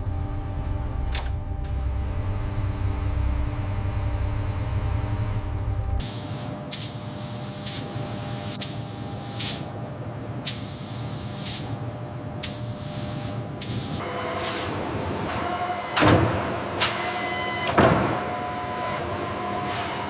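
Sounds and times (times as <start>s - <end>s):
faint machine hum: 0.0s - 20.0s
short spraying hiss bursts: 6.0s - 9.7s.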